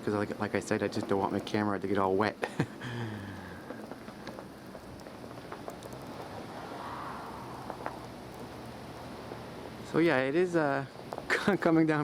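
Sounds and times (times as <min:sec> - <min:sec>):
wind and blowing snow hissing: 0:02.4 - 0:09.9.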